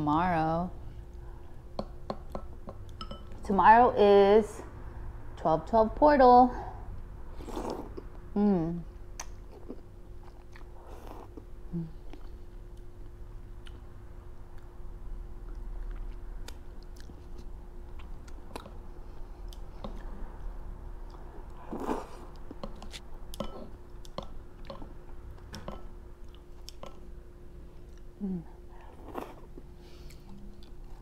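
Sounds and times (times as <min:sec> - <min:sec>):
faint steady hum: 0:00.0 - 0:31.0
wet chewing and smacking: 0:15.4 - 0:20.2, 0:21.0 - 0:25.4.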